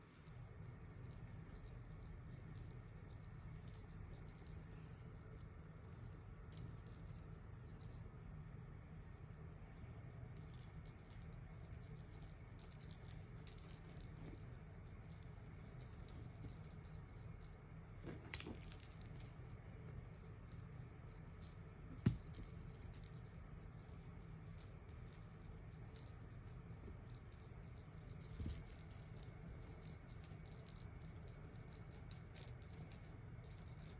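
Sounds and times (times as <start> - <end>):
cat toy bell jingling: 0.0 - 33.9.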